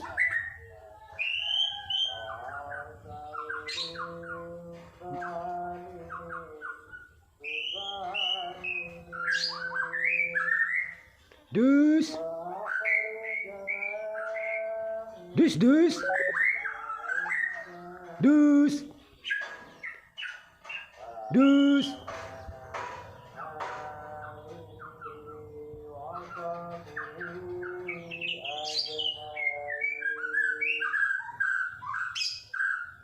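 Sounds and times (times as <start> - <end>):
songbird whistling: 0.1 - 4.4, 6.0 - 11.1, 12.6 - 14.8, 16.0 - 17.8, 26.1 - 33.0.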